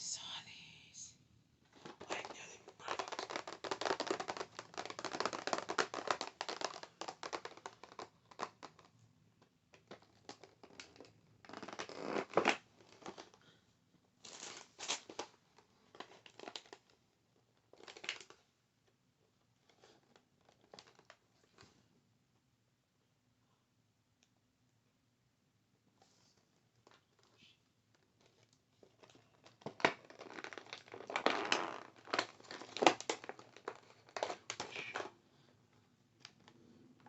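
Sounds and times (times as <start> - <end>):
scratching on small objects: 1.7 - 8.8
packaging crinkling: 1.8 - 8.9, 28.2 - 35.1.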